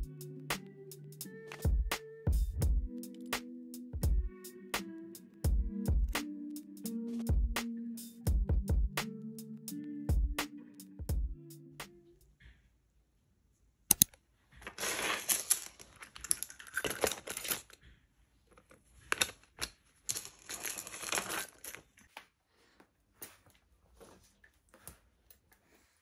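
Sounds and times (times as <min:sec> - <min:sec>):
sharp clicks: 0:13.9 - 0:14.2
crinkling and rustling: 0:14.4 - 0:26.0.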